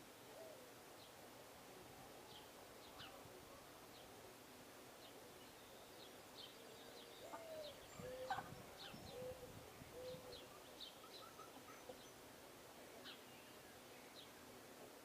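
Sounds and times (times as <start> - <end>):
small birds chirping: 5.0 - 12.3
dove cooing: 7.2 - 12.0.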